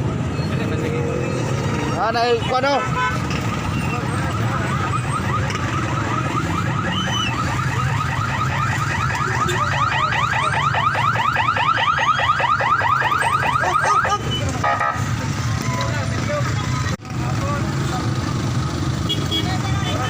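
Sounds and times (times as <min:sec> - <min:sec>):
traffic rumble: 0:00.0 - 0:20.0
car alarm rising chirps: 0:03.6 - 0:14.4.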